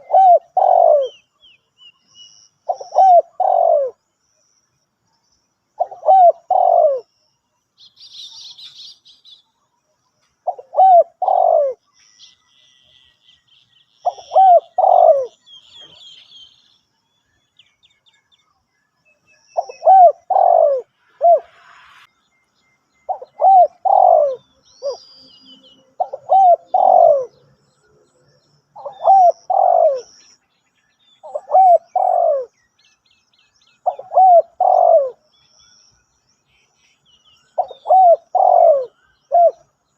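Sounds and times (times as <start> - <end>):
dove cooing: 0.0 - 1.2, 2.7 - 4.0, 5.8 - 7.1, 10.4 - 11.8, 14.0 - 16.0, 19.6 - 21.5, 23.1 - 25.0, 26.0 - 27.4, 28.8 - 30.1, 31.2 - 32.5, 33.8 - 35.2, 37.6 - 39.7
small birds chirping: 0.0 - 39.9.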